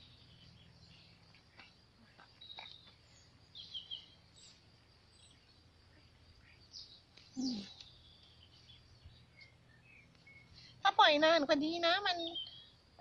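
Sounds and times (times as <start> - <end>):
faint bird chirps: 0.0 - 11.2, 11.8 - 13.0.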